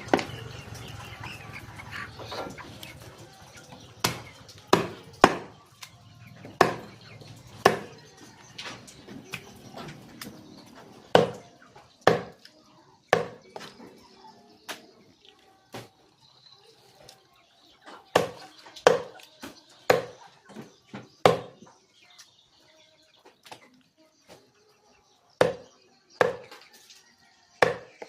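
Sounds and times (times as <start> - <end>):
knife chopping chicken: 4.0 - 5.5, 6.6 - 6.9, 7.6 - 8.0, 11.1 - 11.4, 12.1 - 12.4, 13.1 - 13.7, 18.2 - 19.2, 19.9 - 20.2, 21.2 - 21.6, 27.6 - 27.9.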